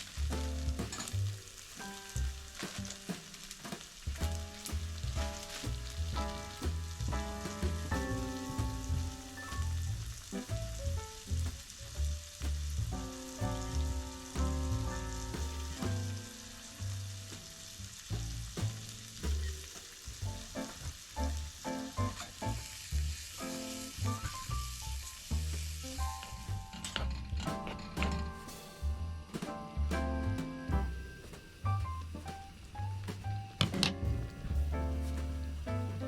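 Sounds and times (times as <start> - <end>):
food sizzling in a frying pan: 0.0 - 6.1, 15.0 - 25.9.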